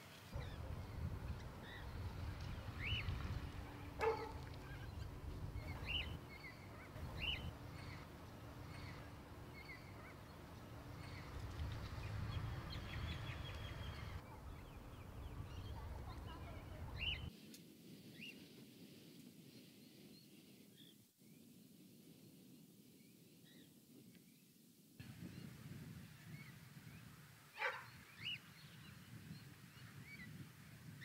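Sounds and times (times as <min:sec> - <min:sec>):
low steady rumble: 0:00.4 - 0:17.3
birds whistled calls: 0:02.8 - 0:08.1.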